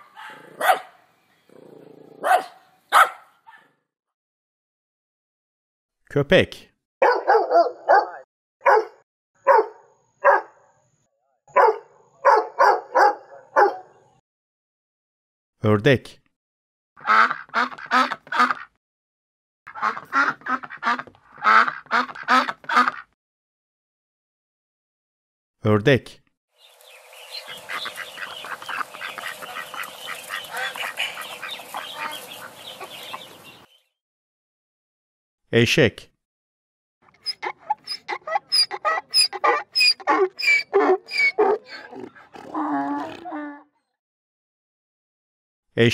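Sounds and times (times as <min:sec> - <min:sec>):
dog barking: 0:00.0 - 0:01.0, 0:02.2 - 0:03.8, 0:07.0 - 0:10.7, 0:11.5 - 0:14.0, 0:38.2 - 0:42.0
ducklings peeping: 0:26.6 - 0:33.8.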